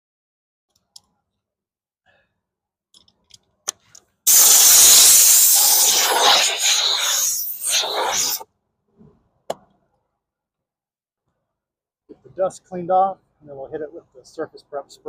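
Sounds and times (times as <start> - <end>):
compressed air hissing: 4.3 - 8.4.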